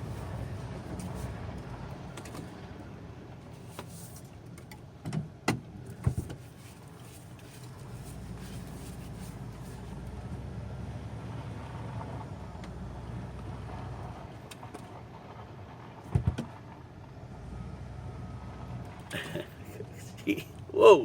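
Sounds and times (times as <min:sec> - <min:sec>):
motorhome engine running: 0:00.0 - 0:21.0.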